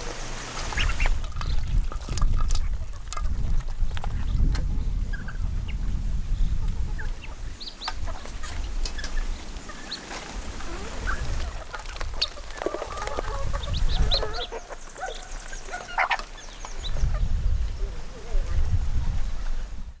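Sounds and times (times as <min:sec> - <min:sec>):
poultry clucking: 0:00.0 - 0:18.5.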